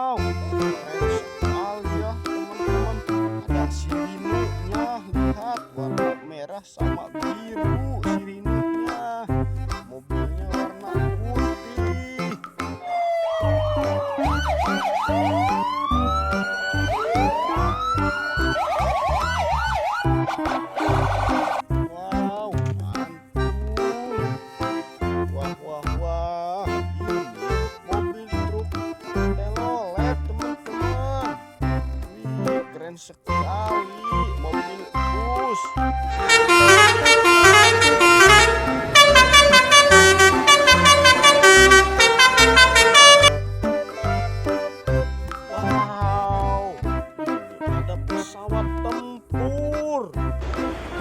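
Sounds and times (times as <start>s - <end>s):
multi-tone bus horn melody: 0.0s - 9.6s, 11.7s - 21.7s, 33.3s - 46.0s, 46.8s - 48.0s, 50.2s - 51.0s
background music with beat: 0.0s - 26.0s, 26.7s - 51.0s
police siren wailing and yelping: 12.8s - 21.7s, 35.7s - 43.3s.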